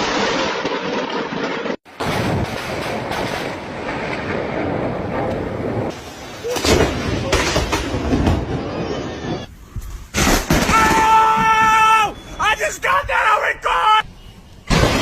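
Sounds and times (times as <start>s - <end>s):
loud thunder clap: 0.0s - 8.7s
rolling thunder: 0.0s - 9.4s.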